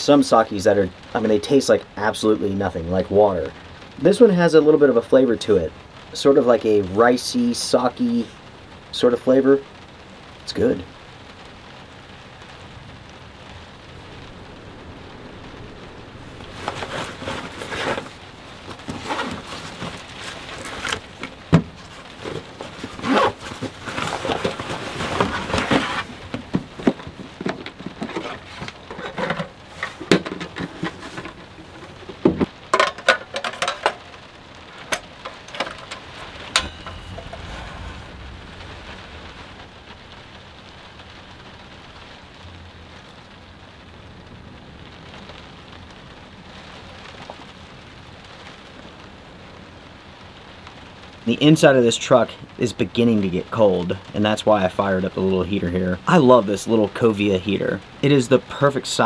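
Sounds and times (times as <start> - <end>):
rain pattering on camper shell: 0.0 - 59.0
clatter and sharp knocks: 20.9 - 34.2, 34.8 - 37.6.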